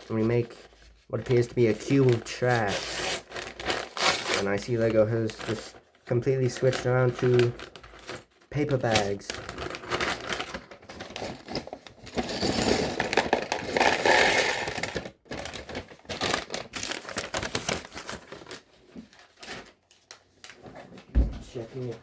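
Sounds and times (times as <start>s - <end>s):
paper bag crinkling: 0.0s - 20.7s
plastic pieces clattering: 6.6s - 18.2s.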